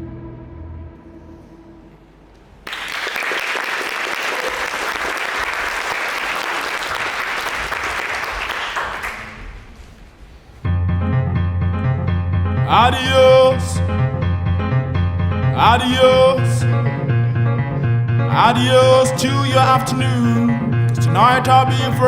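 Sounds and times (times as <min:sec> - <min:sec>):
music: 0:00.0 - 0:02.3, 0:10.6 - 0:22.0
audience applauding: 0:02.6 - 0:09.8.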